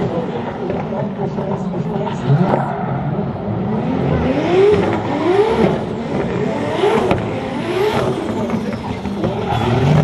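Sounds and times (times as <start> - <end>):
car engine revving hard: 3.6 - 10.0.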